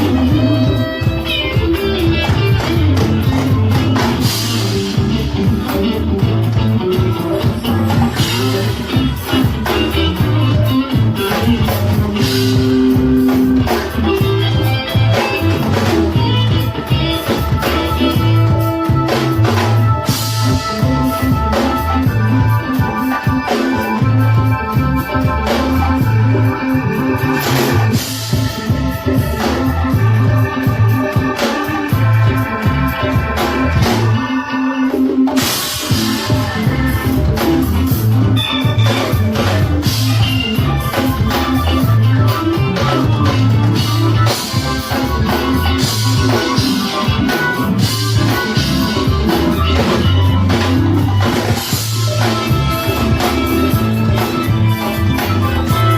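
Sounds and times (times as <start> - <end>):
live rock band playing: 0.0 - 55.9.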